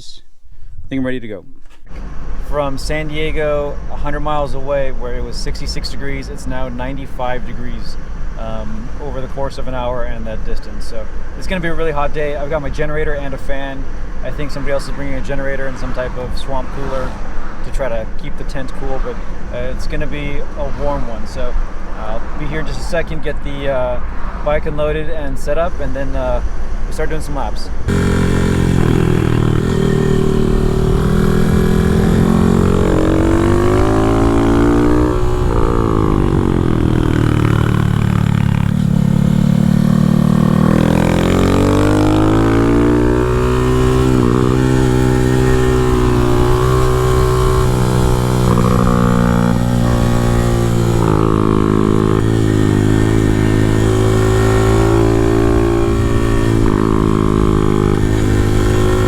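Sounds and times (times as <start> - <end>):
small motorcycle engine revving: 27.9 - 59.0.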